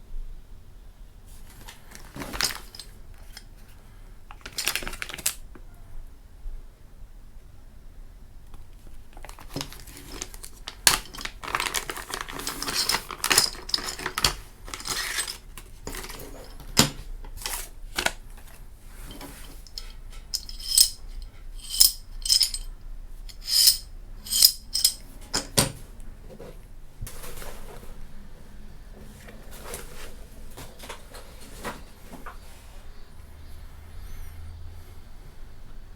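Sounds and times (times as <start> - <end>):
rustling of handled parts: 1.4 - 3.7, 4.3 - 5.4, 9.1 - 25.8
short metallic clinks: 19.1 - 22.7, 23.3 - 25.5.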